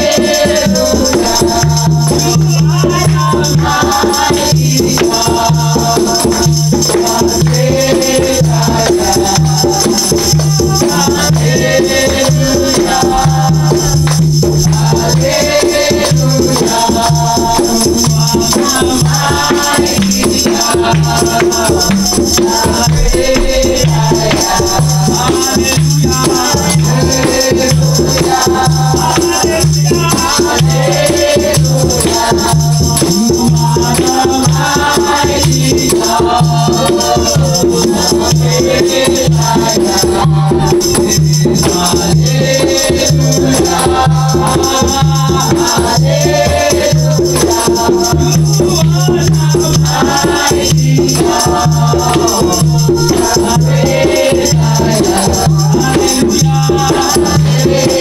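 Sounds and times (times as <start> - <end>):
shaker: 0.0 - 58.0
voices singing: 0.0 - 58.0
steady low beat: 11.3 - 15.7, 17.2 - 27.0.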